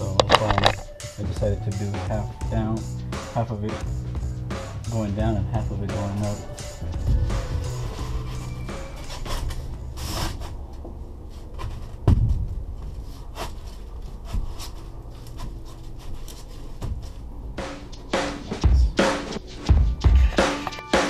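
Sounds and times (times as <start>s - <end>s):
foam board scraping against metal: 7.0s - 10.6s, 13.0s - 19.6s.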